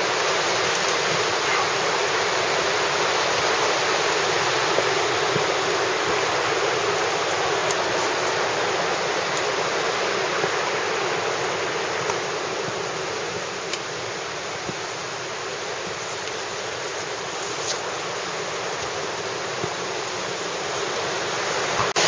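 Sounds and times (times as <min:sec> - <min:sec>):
flowing water rushing: 0:00.0 - 0:22.0.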